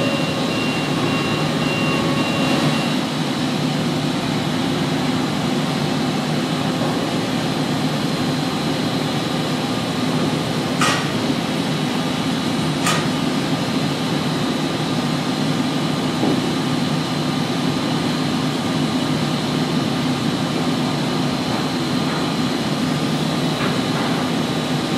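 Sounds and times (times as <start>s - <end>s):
construction machinery drone: 0.0s - 24.9s.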